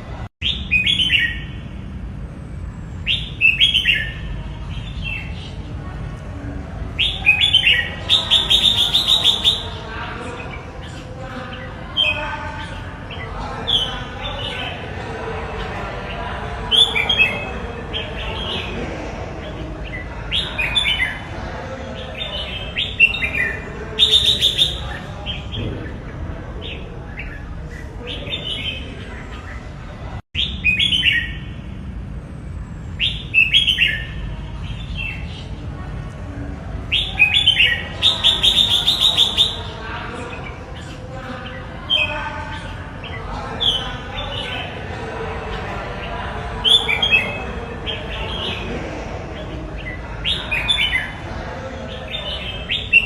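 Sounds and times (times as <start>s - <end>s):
bulbul singing: 3.0s - 5.7s, 6.8s - 15.0s, 19.5s - 29.8s, 36.8s - 44.9s.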